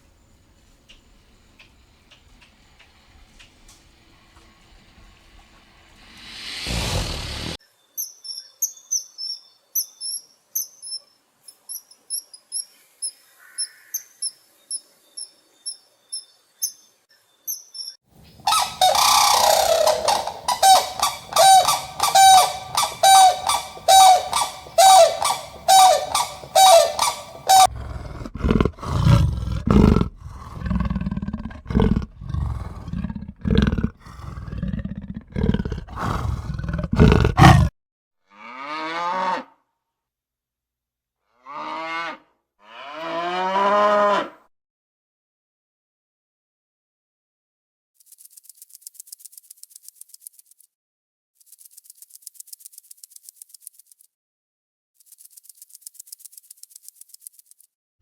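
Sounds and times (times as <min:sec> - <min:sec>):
high quick animal chirps: 0:17.5 - 0:37.7
loud animal calls: 0:18.4 - 0:37.7
low pulsing grunts: 0:27.7 - 0:37.7.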